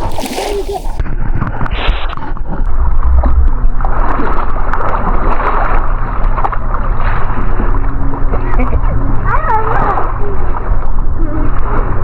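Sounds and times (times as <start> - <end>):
rushing water wash: 0.0 - 1.0
watercraft engine hum: 0.0 - 1.0, 2.6 - 12.0.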